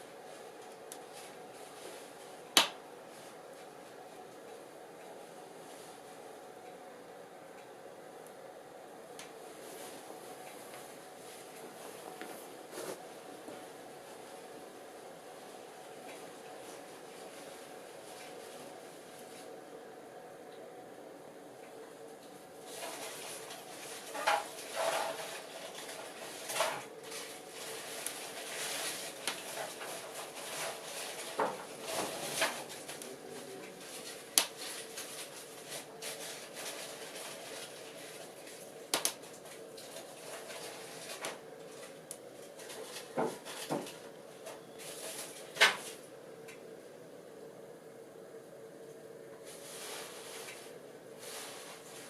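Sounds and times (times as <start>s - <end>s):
fire crackling and popping: 2.5s - 2.8s, 22.7s - 33.1s, 34.0s - 35.4s, 38.9s - 40.6s.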